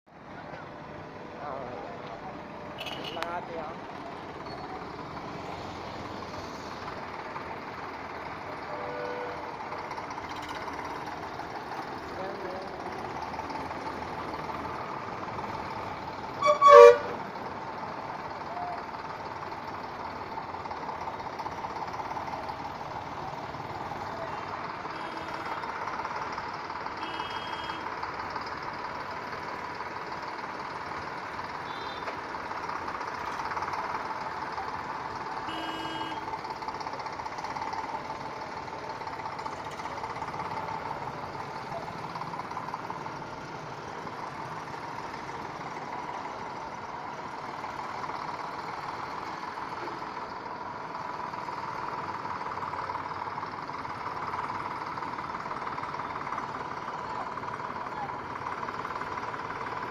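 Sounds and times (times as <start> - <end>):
diesel tractor engine running: 0.1 - 59.9
loud two-part horn toot: 16.4 - 17.2.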